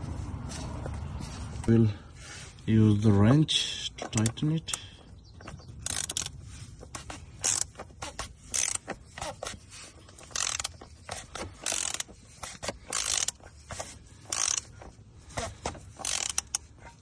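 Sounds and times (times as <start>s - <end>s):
ratchet wrench clicking: 5.8s - 6.4s, 7.4s - 8.9s, 10.2s - 13.5s, 14.2s - 14.7s, 16.0s - 16.7s.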